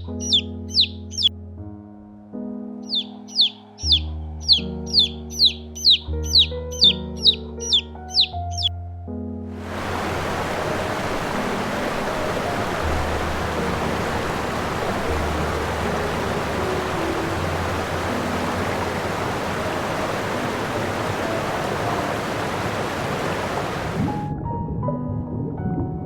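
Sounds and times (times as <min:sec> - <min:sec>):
faint music: 0:00.0 - 0:01.4, 0:02.8 - 0:08.8, 0:09.6 - 0:26.0
steady rushing noise: 0:09.6 - 0:24.3.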